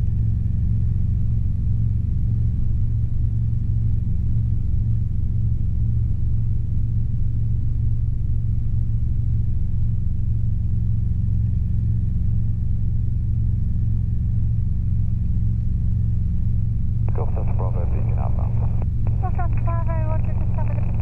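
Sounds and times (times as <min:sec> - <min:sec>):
helicopter engine and rotor drone: 0:14.1 - 0:21.0.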